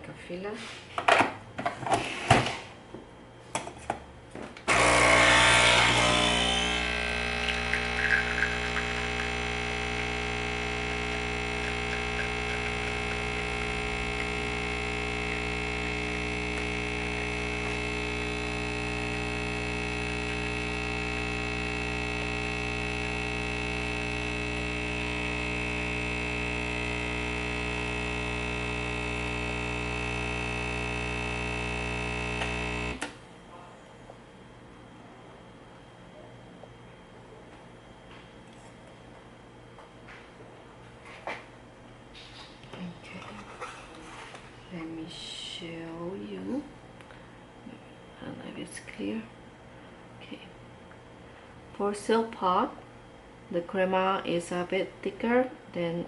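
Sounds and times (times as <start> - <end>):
coffee machine pump buzzing: 4.6 - 33.2.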